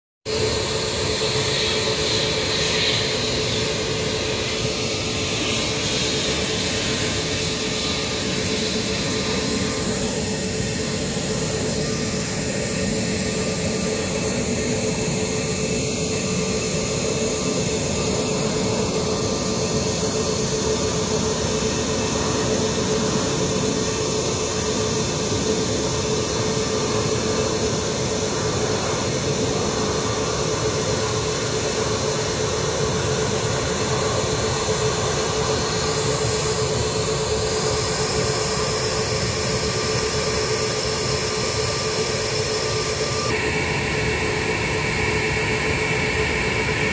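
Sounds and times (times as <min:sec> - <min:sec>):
jet engines running: 0:00.3 - 0:46.9.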